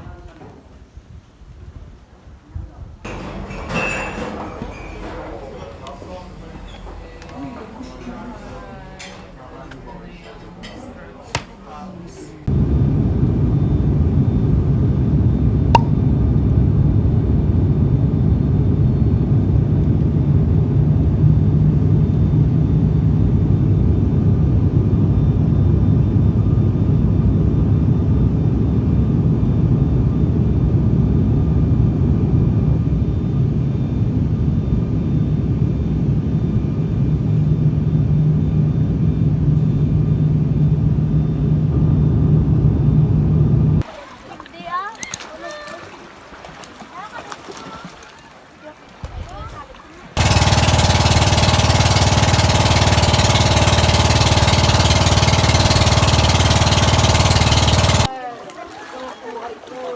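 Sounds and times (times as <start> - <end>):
loud low engine rumble: 35.8 - 43.8, 50.2 - 58.1.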